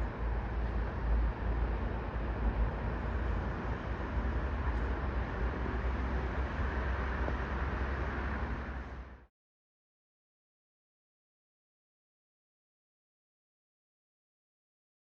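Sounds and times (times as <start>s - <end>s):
outdoor rumble and hiss: 0.0s - 9.3s.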